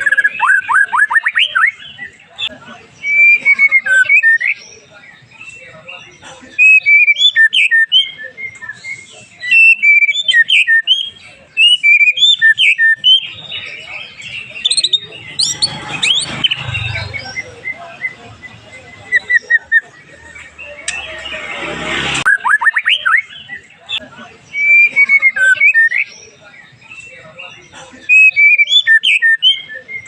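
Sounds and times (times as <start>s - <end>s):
bird singing whistled phrases: 0.0s - 2.1s, 6.6s - 19.9s, 22.3s - 23.7s, 24.5s - 26.3s, 28.1s - 30.0s.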